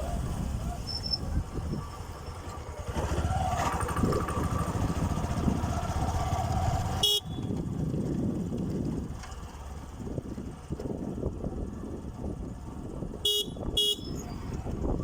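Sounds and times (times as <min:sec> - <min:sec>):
motorcycle engine rumble: 0:00.0 - 0:15.0
vehicle horn: 0:07.0 - 0:07.6, 0:13.2 - 0:14.2.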